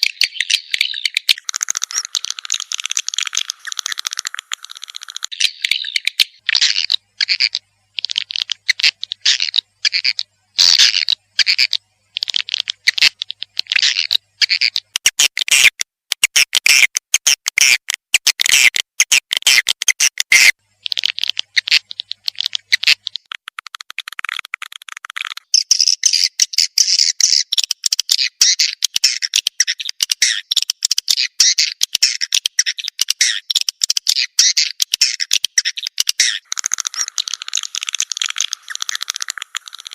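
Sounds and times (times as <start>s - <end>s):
swiftlet chirps and clicks: 0.0s - 6.4s, 11.4s - 39.9s.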